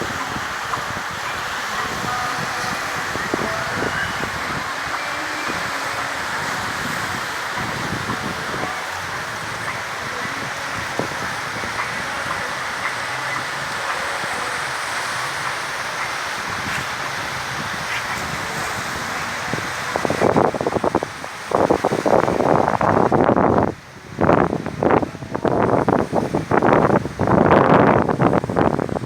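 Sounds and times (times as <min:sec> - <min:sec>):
surf washing: 0:00.0 - 0:29.0
wind on microphone: 0:00.0 - 0:29.0.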